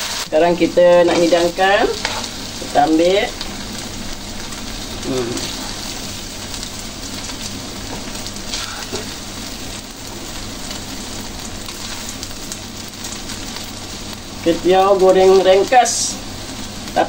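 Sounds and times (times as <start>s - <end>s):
noodles sizzling in a wok: 0.0s - 17.0s.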